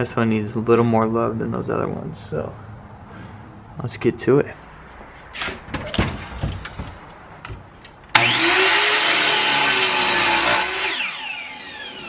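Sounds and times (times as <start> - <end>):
light handling knocks: 5.3 - 8.2
electric saw cutting wood: 8.1 - 12.0.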